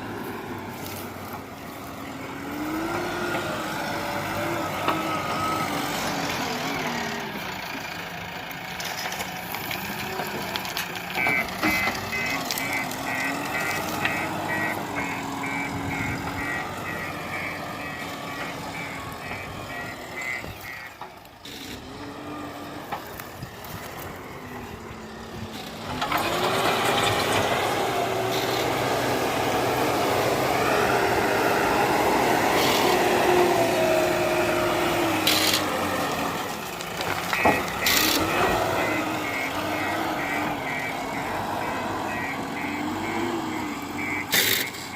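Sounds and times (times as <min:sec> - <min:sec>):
diesel engine working: 0:00.0 - 0:44.9
reversing alarm beeping: 0:11.2 - 0:20.9, 0:37.3 - 0:44.9.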